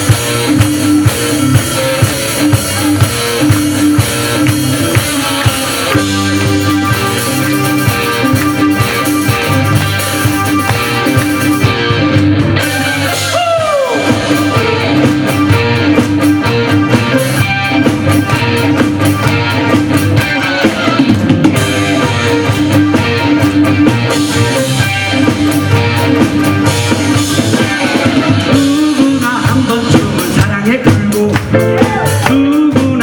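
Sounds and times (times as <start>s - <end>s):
rock band playing instrumental: 0.0s - 33.0s.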